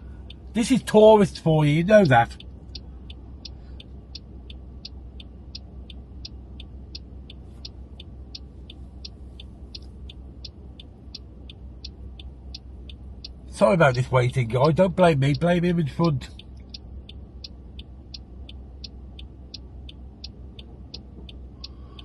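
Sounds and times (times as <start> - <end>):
car engine idling hum: 0.0 - 22.0
turn signal ticking: 0.0 - 22.0.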